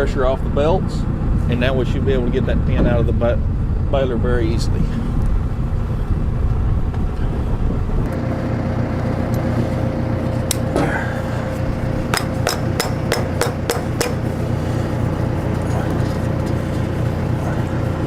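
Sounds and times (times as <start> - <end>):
tractor engine idling: 0.0 - 18.0
sharp metal strikes: 12.1 - 14.2.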